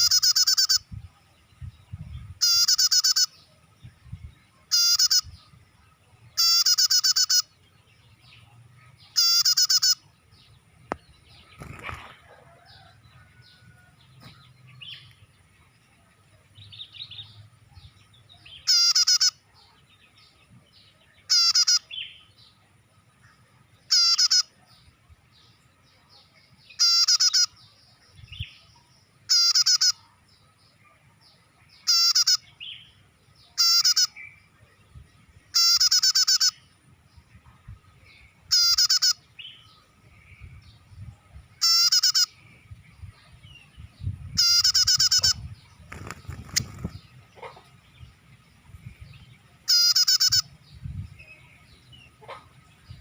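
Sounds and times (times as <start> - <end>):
bird chattering call: 0.0 - 0.9, 2.4 - 3.4, 4.7 - 5.4, 6.4 - 7.6, 9.0 - 10.1, 18.5 - 19.4, 21.3 - 22.0, 23.9 - 24.5, 26.7 - 27.6, 29.3 - 30.0, 31.8 - 32.6, 33.6 - 34.3, 35.5 - 36.7, 38.5 - 39.5, 41.6 - 42.4, 44.4 - 47.7, 49.6 - 50.6
faint bird chirps: 0.0 - 53.0.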